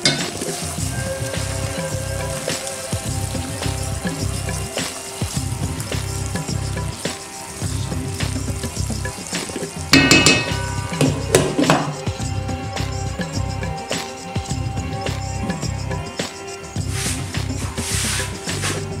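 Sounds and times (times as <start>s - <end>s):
cookware clattering: 0.0s - 0.6s, 9.0s - 12.1s
background music with beat: 0.0s - 19.0s
paste sizzling in oil: 0.0s - 19.0s
lid knocking on pot: 9.9s - 12.1s.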